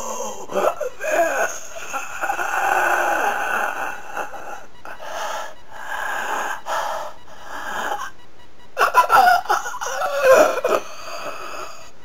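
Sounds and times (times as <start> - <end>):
man groaning in pain: 0.0 - 4.6, 8.8 - 11.8.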